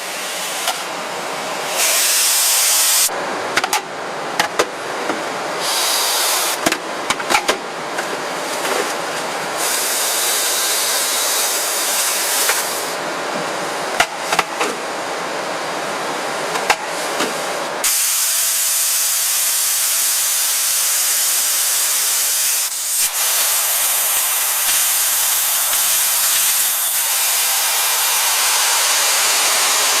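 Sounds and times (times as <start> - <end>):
hissing spray or rushing air: 5.6 - 6.6, 17.8 - 30.0.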